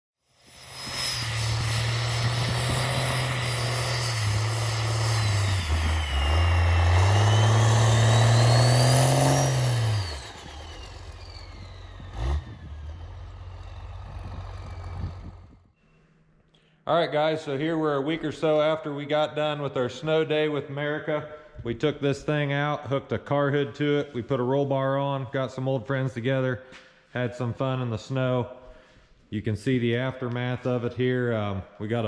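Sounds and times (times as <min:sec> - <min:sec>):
diesel truck engine revving: 0:01.0 - 0:15.7.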